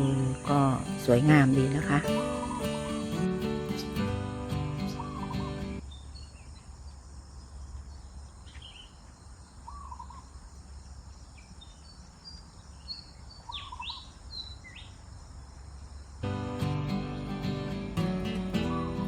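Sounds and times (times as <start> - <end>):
lower three-note bird call: 0.0 - 5.8, 16.5 - 19.0
birds chirping: 0.0 - 19.0
bird whistles: 4.8 - 5.8, 18.6 - 19.0.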